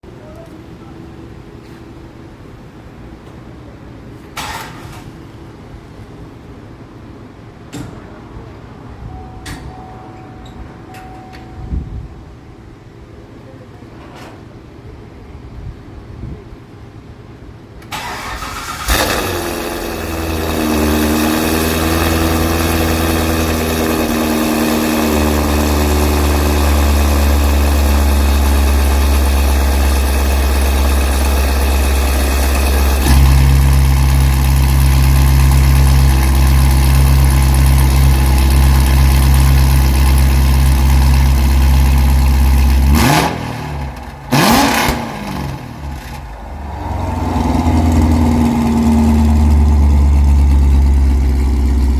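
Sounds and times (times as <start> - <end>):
car engine starting and running: 17.8 - 51.9.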